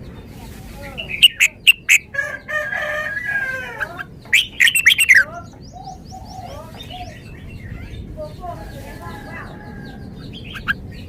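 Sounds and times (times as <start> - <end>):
bird whistling short phrases: 1.0 - 2.0
rooster crowing: 2.1 - 4.1, 8.6 - 10.1.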